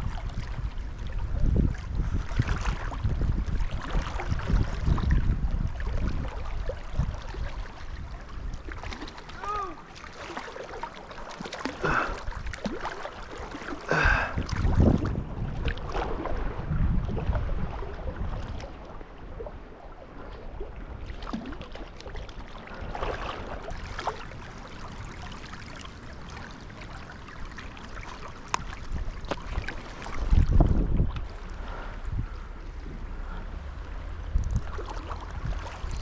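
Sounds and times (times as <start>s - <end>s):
wind rumble on microphone: 0.0s - 9.9s, 11.8s - 36.0s
river current running: 5.6s - 16.5s, 18.8s - 36.0s.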